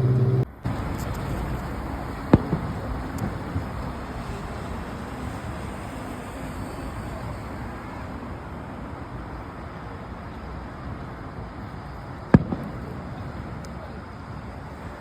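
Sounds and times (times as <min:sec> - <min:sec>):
firework bang: 0:00.0 - 0:06.0, 0:12.3 - 0:13.4
steady outdoor rumble: 0:00.0 - 0:15.0.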